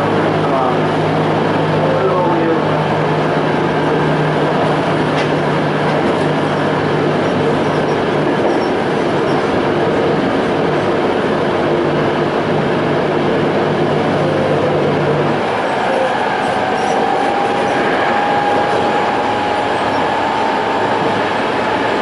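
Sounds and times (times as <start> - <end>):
wheel and rail noise: 0.0 - 22.0
high traction motor tones: 13.7 - 22.0.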